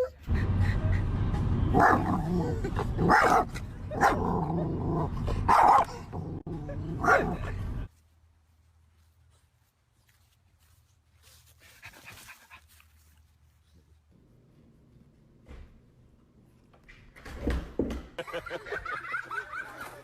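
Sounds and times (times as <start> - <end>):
dog barking: 1.8 - 2.2, 3.1 - 4.3, 5.5 - 5.9, 7.0 - 7.4.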